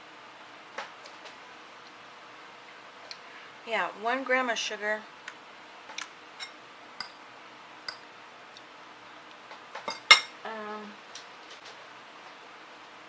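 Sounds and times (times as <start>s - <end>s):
utensil clinking against dish: 9.9s - 10.4s.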